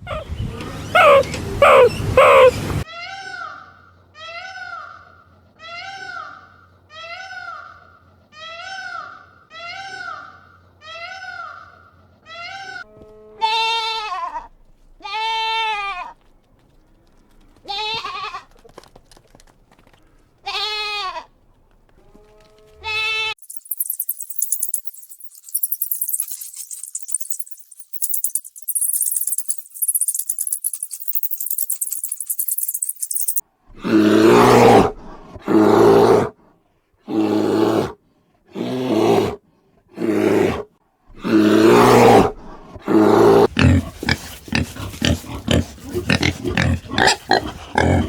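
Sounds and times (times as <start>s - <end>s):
kitten mewing: 1.0s - 2.6s
goat bleating: 13.0s - 16.2s, 17.6s - 18.7s, 20.4s - 21.3s
rapid high-pitched rattling: 23.4s - 33.4s.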